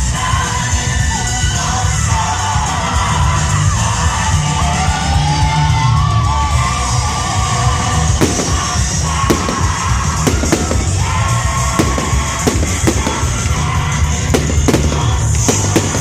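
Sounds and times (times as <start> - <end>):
loud music: 6.1 - 16.0
fireworks bangs: 8.0 - 16.0.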